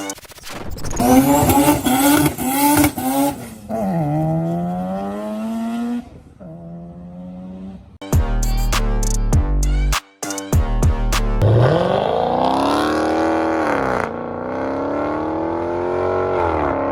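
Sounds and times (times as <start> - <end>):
car engine accelerating: 11.4 - 16.9.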